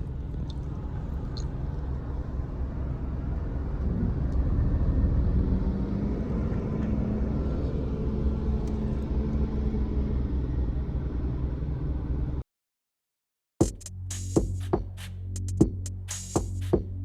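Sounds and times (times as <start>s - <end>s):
car engine hum: 0.0s - 12.4s
road noise: 0.0s - 12.4s.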